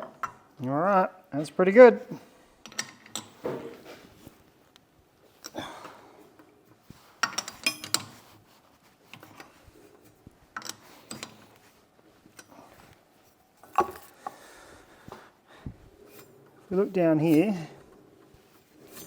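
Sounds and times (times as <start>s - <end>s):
metal tools clanking: 7.2s - 8.2s.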